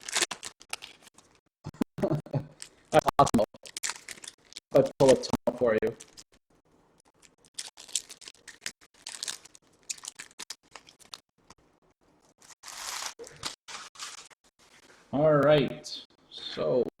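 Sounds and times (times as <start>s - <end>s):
wrapper tearing and crinkling: 0.0s - 1.4s, 3.6s - 5.3s, 7.0s - 11.3s, 12.4s - 14.8s.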